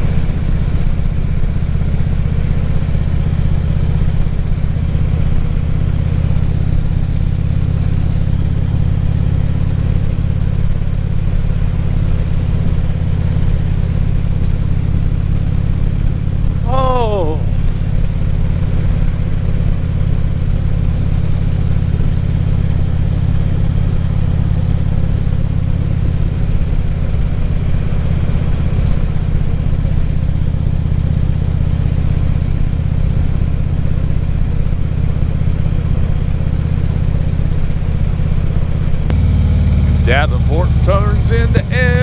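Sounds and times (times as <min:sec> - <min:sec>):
motorcycle engine droning: 0:16.6 - 0:18.0, 0:39.1 - 0:42.0
wind and road noise: 0:38.6 - 0:41.8.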